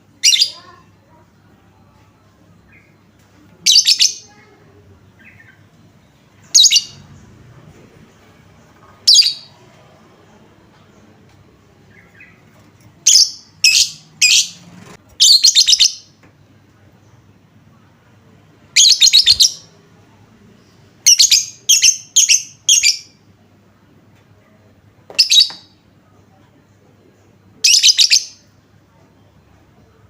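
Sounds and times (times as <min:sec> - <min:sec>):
lovebird chattering: 0:18.8 - 0:19.7.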